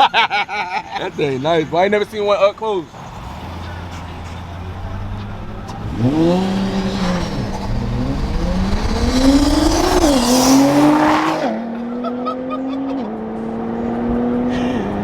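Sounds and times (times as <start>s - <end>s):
dirt bike engine revving: 3.0s - 11.6s.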